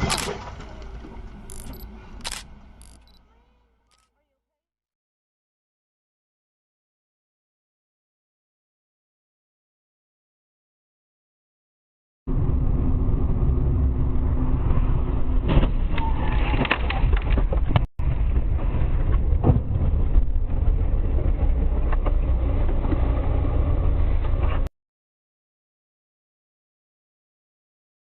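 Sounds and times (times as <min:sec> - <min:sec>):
car engine and road rumble: 0:00.0 - 0:04.0, 0:12.3 - 0:24.7.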